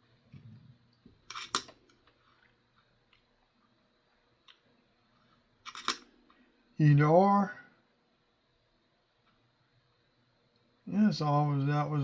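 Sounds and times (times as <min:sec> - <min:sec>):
coins clicking together: 0:01.3 - 0:01.8, 0:05.6 - 0:06.1.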